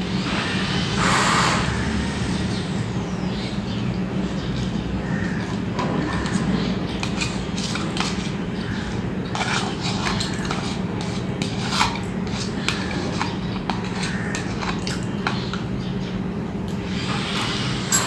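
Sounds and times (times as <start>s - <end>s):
food and fingers scraping plate: 4.2s - 15.7s.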